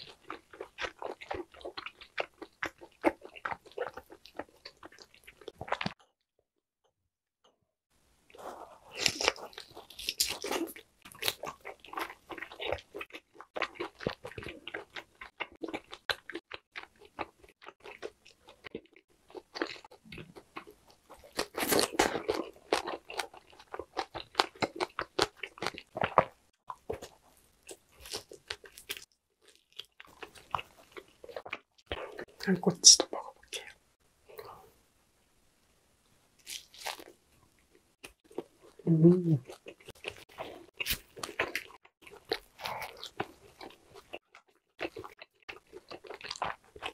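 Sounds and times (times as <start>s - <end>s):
person chewing and crunching: 0.0s - 6.0s, 8.3s - 33.7s, 36.4s - 46.9s.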